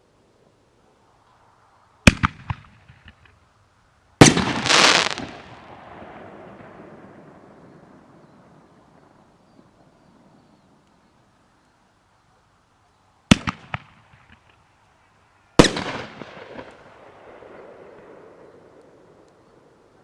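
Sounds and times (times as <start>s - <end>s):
firework bursting with a bang: 4.2s - 5.7s
firework launching with a bang: 4.2s - 6.0s
firework crackle: 4.2s - 9.3s.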